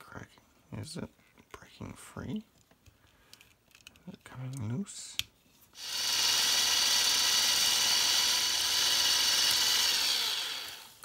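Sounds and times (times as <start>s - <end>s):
electric drill drilling: 5.8s - 11.0s.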